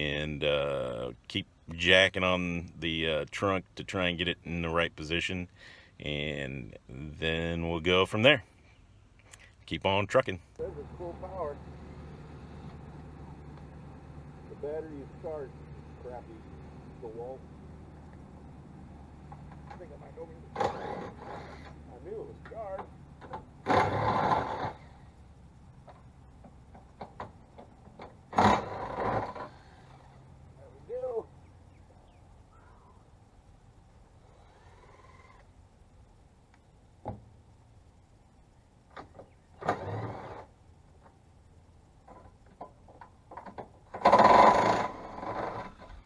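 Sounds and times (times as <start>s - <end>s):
small metallic clicks and knocks: 42.0s - 45.9s.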